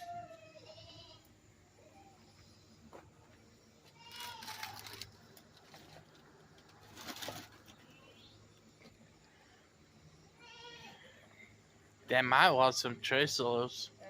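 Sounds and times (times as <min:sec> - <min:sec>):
goat bleating: 0:00.0 - 0:01.3, 0:10.4 - 0:11.2.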